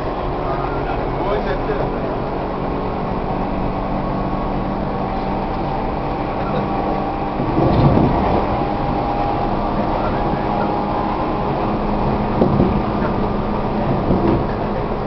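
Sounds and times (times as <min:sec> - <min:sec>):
steady motor tones: 0:00.0 - 0:15.0
train wheel and motor noise: 0:00.0 - 0:15.0.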